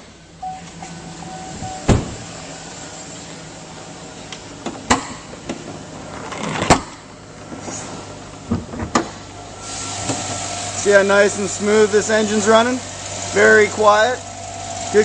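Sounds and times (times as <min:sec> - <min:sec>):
engine idling hum: 0:00.0 - 0:15.0
truck hood clunking open: 0:01.5 - 0:02.3.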